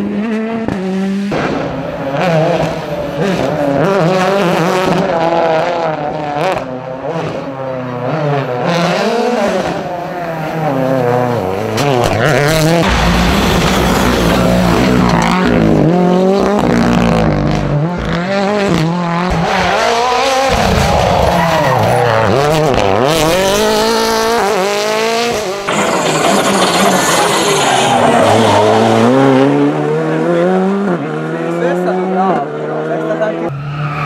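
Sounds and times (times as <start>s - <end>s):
rally car engines revving: 0.0s - 34.0s.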